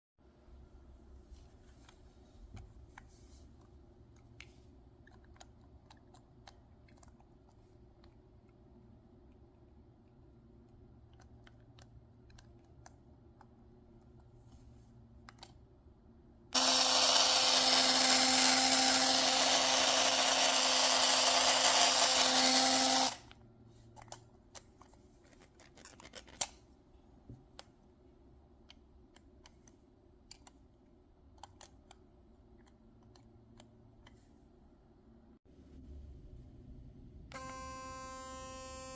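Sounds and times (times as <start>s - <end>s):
electric toothbrush buzzing and rattling: 16.6s - 23.2s, 37.4s - 38.9s.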